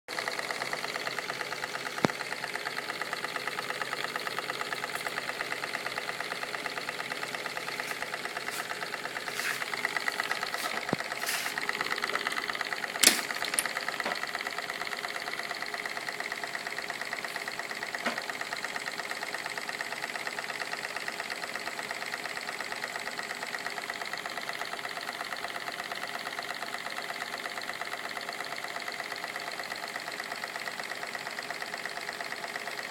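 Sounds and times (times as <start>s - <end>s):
steam engine running: 0.1s - 32.9s
sharp click: 2.0s - 2.2s, 10.3s - 14.2s.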